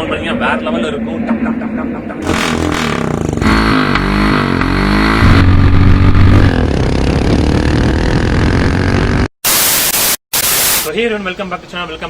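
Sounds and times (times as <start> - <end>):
motorcycle engine revving: 2.2 - 9.3.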